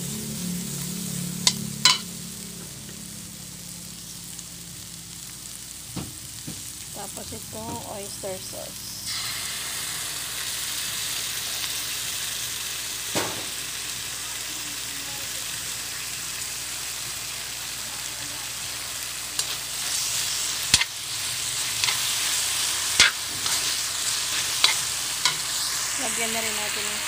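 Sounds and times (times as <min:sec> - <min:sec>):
food sizzling in a wok: 0:00.0 - 0:27.0
metal spatula scraping a wok: 0:01.4 - 0:02.1, 0:19.4 - 0:25.8.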